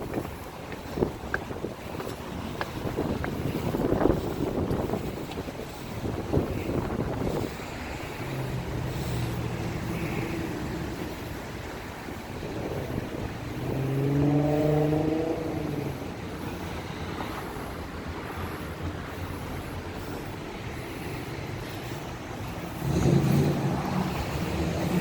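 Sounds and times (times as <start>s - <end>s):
street traffic: 0.0s - 25.0s
car engine passing: 5.7s - 25.0s.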